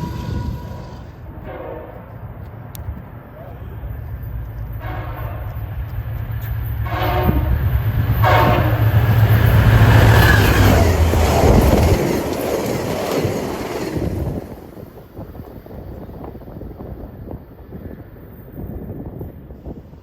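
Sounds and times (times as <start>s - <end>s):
train horn blasts: 0.0s - 2.2s, 4.7s - 5.6s, 6.8s - 9.1s
diesel locomotive engine: 0.0s - 20.0s
train wheels rumbling: 0.0s - 20.0s.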